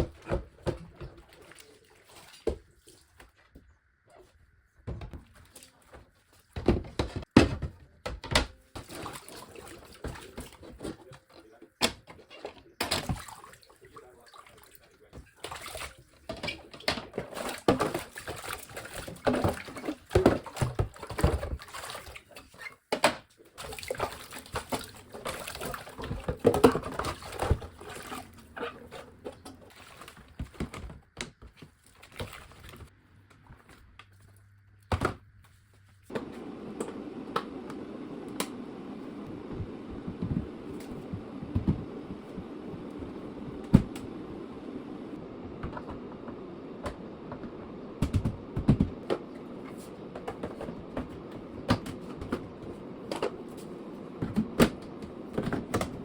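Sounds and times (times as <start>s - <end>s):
water: 0.0s - 6.6s, 8.6s - 34.6s
knocks and clatter of handled things: 4.8s - 13.3s, 15.1s - 36.4s, 45.5s - 56.0s.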